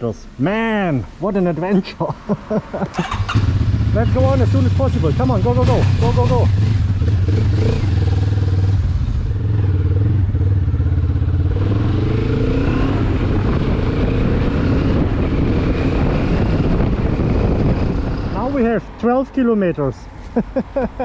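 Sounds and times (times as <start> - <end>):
motorcycle engine accelerating: 2.9 - 18.6
wind rush: 10.1 - 19.0.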